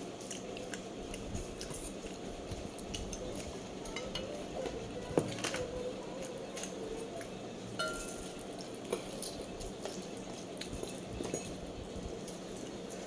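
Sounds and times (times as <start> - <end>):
dishes and utensils clinking: 7.8 - 8.4, 11.2 - 11.6.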